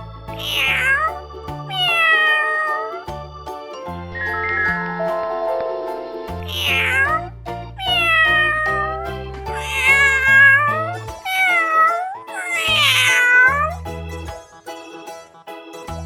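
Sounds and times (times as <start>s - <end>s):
background music with bass line: 3.1s - 11.3s, 12.7s - 15.2s
cat meowing: 4.2s - 5.0s, 6.5s - 7.2s, 7.8s - 9.0s.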